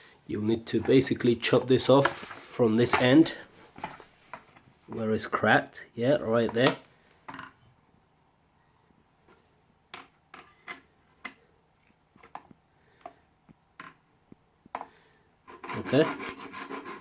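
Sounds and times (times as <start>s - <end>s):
plastic tube and hacksaw handling: 14.8s - 17.0s.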